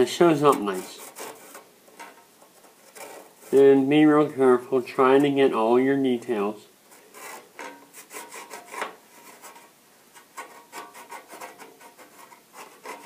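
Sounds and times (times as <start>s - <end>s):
pencil scratching on sheet metal: 0.1s - 4.3s, 6.9s - 13.0s.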